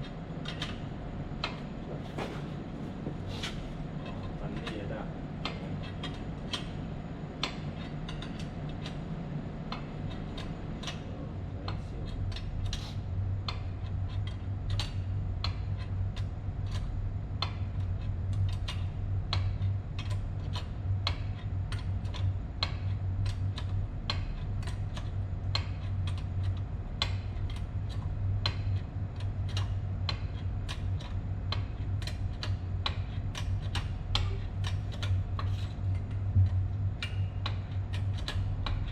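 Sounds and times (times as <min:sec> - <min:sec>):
low machine hum: 0:00.0 - 0:38.9
light metallic ticks and clicks: 0:13.5 - 0:38.9.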